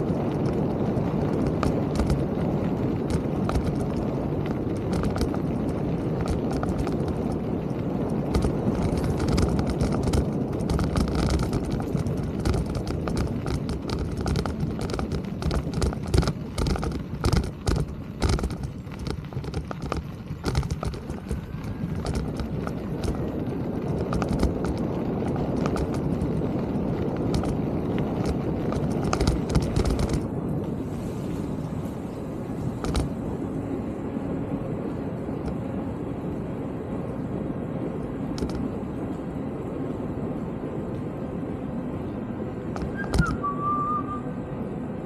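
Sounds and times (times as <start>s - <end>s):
bike rattling clicks and knocks: 0.0s - 30.8s, 32.5s - 33.2s, 38.3s - 38.8s, 42.6s - 43.4s
bike rolling rumble: 0.0s - 45.0s.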